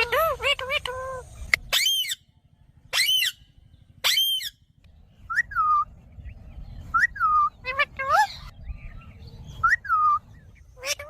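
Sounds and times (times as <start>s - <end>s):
parakeet screeching calls: 0.0s - 4.7s, 9.9s - 11.0s.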